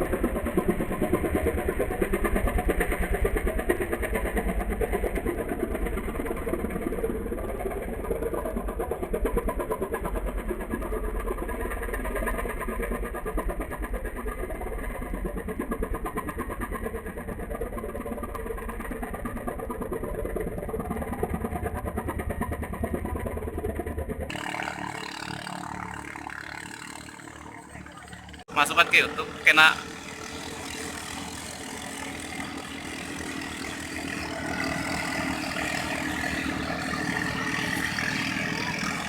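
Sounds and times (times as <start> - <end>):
boat engine running at high revs: 0.0 - 39.0
quieter engine: 11.0 - 39.0.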